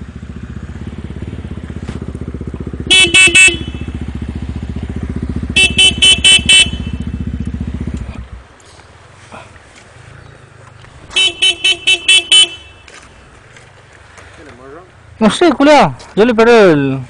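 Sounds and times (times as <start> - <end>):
motorcycle engine running: 0.0 - 15.1
motorcycle horn beeps: 2.8 - 4.3, 5.4 - 7.4, 11.1 - 13.1.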